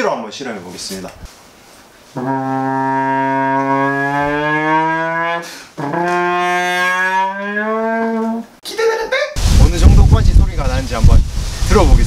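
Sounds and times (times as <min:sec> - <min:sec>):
trombone sliding held notes: 0:02.1 - 0:08.5.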